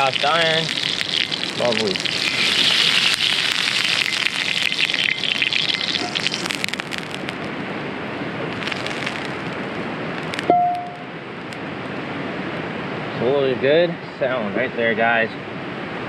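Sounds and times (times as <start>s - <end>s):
oil sizzling and popping in a pan: 0.0s - 7.6s, 8.5s - 11.6s.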